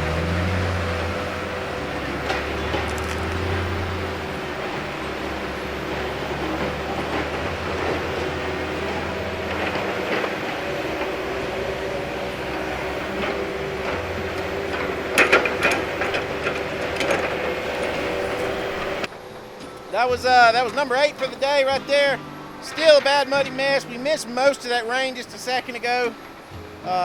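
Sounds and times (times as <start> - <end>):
metallic clanks and rattles: 0.0 - 24.8
heavy diesel machinery running: 0.0 - 27.0.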